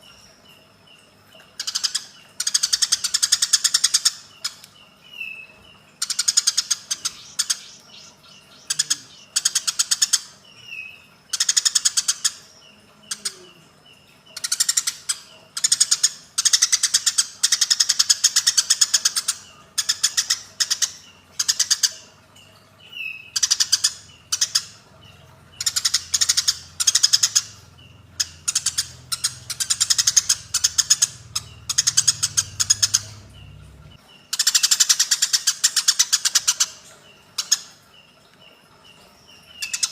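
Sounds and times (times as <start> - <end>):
bird rattling trills: 25.6 - 37.6.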